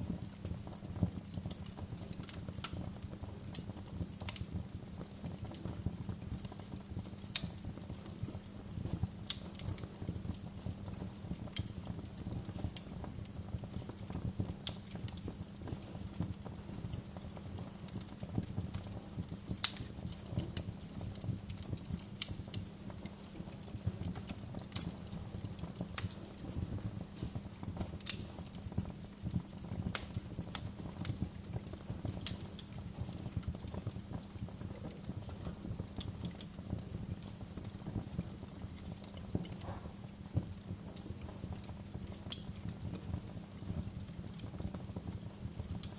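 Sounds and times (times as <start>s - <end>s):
wood fire crackling and popping: 0.0s - 45.9s.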